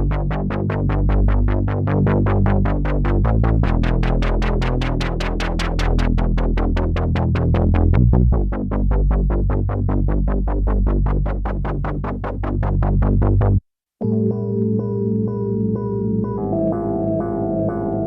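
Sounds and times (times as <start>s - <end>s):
sustained low bass tone: 0.0s - 18.0s
synthesizer plucked notes pattern: 0.0s - 18.0s
synthesizer chord pad: 14.0s - 18.0s.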